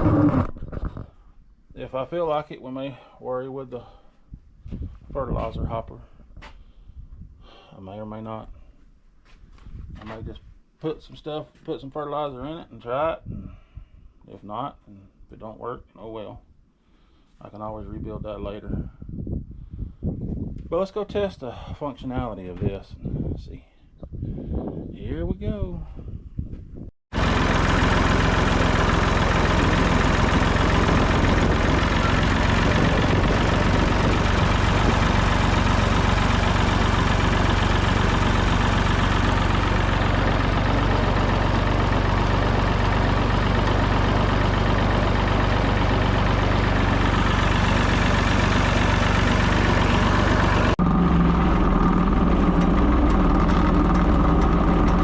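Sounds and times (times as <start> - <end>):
tractor engine running: 27.1 - 55.0.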